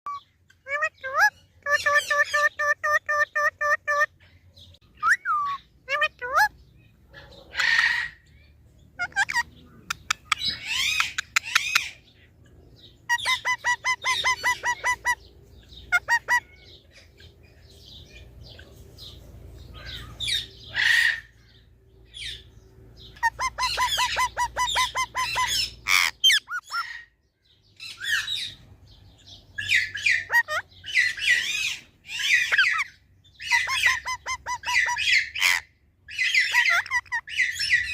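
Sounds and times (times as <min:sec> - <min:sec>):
parrot squawking: 0:00.1 - 0:04.1, 0:04.9 - 0:06.6, 0:07.2 - 0:08.3, 0:09.0 - 0:12.1, 0:13.1 - 0:17.3, 0:19.7 - 0:21.4, 0:23.1 - 0:27.2, 0:29.6 - 0:37.9
parrot chirping: 0:00.1 - 0:04.2, 0:04.8 - 0:12.2, 0:12.8 - 0:27.1, 0:29.6 - 0:37.9.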